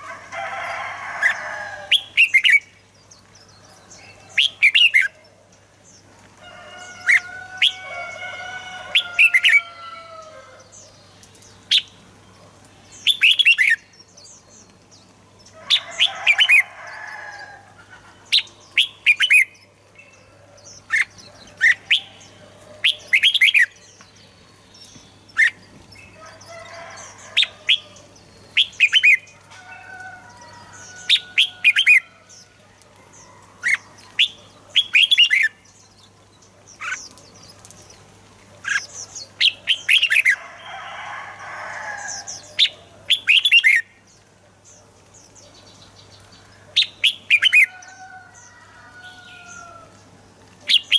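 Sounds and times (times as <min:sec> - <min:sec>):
bird sharp chirping phrases: 0:12.9 - 0:14.7, 0:18.2 - 0:32.6.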